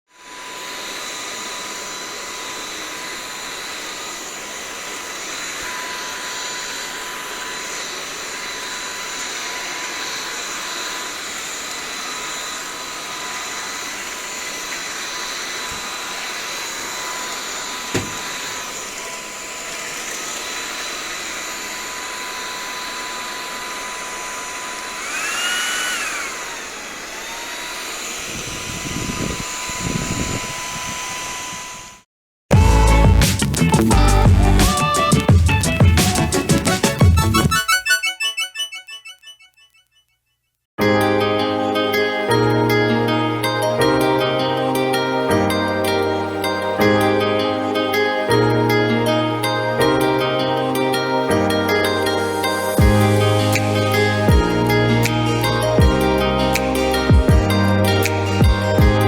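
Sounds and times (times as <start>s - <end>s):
vacuum cleaner motor whine: 0.1s - 37.2s, 52.0s - 55.9s.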